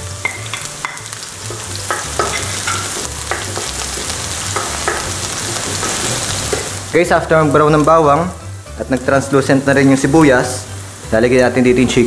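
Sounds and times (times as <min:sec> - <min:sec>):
garlic and onion sizzling in oil: 0:00.0 - 0:12.0
wooden spatula knocking pan: 0:00.3 - 0:06.7.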